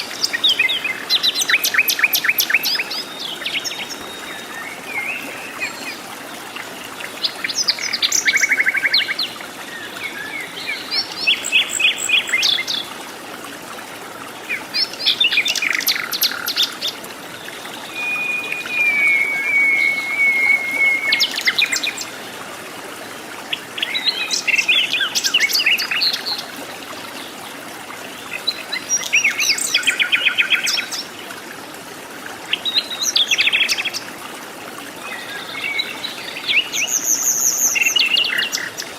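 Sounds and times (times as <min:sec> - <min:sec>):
bird chirping song: 0:17.8 - 0:22.1
bird trill: 0:18.0 - 0:21.8.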